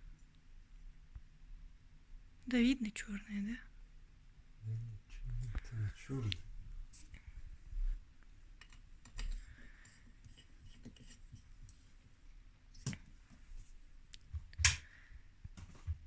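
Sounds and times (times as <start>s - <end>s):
small clicks and light knocks: 8.2s - 11.8s.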